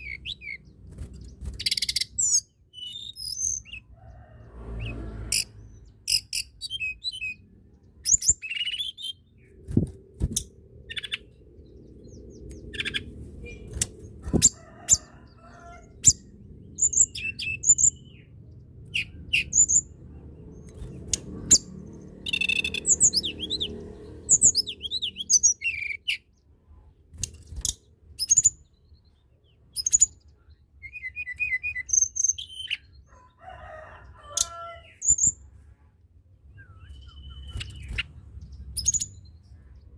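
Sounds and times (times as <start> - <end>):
bird chirping and whistling: 1.6 - 3.8, 8.0 - 9.2, 22.2 - 23.7, 24.3 - 26.2, 30.8 - 32.8, 36.6 - 38.1
low background rumble: 8.9 - 25.6.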